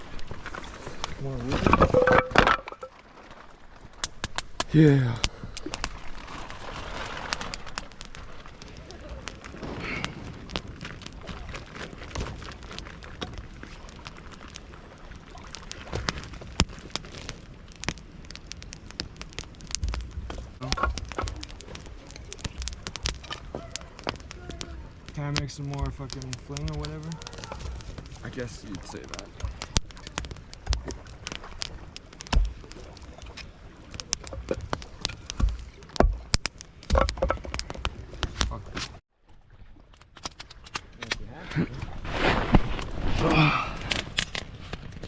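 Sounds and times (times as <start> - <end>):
campfire crackling and popping: 0.0 - 45.0
rain hissing: 4.4 - 11.4, 12.1 - 35.9, 41.3 - 45.0.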